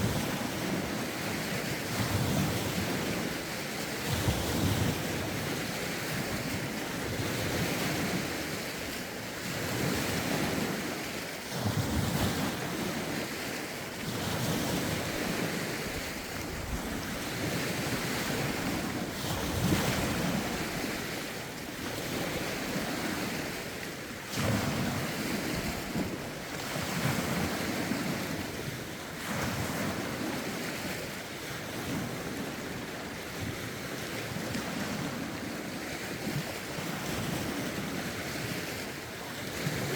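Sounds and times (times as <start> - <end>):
lake waves washing ashore: 0.0 - 39.9
wind buffeting microphone: 14.1 - 31.0.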